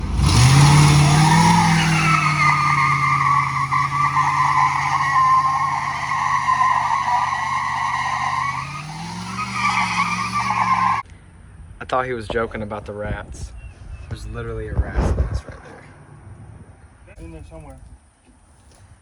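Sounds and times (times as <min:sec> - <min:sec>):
engine at high revs: 0:00.0 - 0:11.0
tyre squeal: 0:00.4 - 0:11.0.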